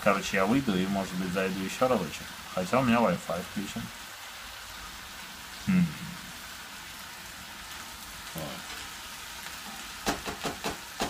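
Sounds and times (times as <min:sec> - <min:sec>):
chicken frying hiss: 0:00.0 - 0:11.0
short vocal sound: 0:05.6 - 0:06.3.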